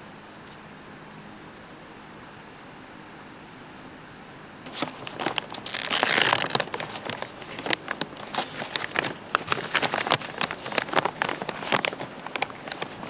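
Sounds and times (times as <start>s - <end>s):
crunching rustle: 4.6s - 13.0s
insects chirping: 4.6s - 13.0s
crackling and rustling clicks: 4.7s - 13.0s.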